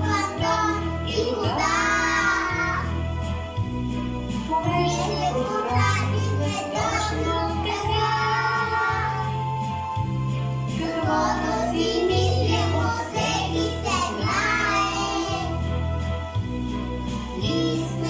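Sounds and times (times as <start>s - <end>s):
children singing: 0.0s - 3.0s, 4.7s - 9.7s, 10.7s - 15.7s, 17.4s - 18.0s.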